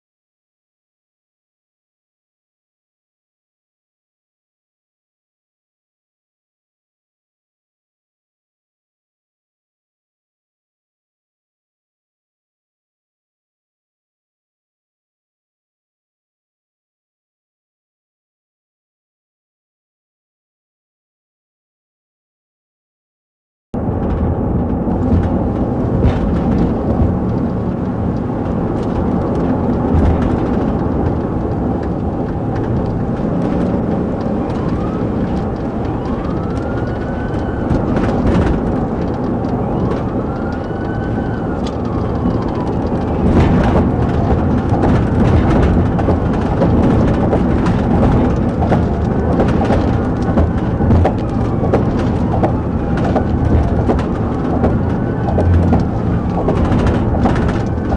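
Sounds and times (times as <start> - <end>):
police siren wailing: 23.8 - 57.9
vehicle engine and road rumble: 23.8 - 57.9.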